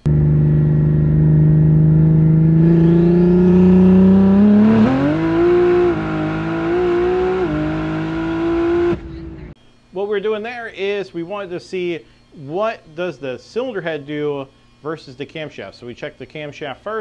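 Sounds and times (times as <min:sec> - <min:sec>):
car engine accelerating hard: 0:00.0 - 0:09.6.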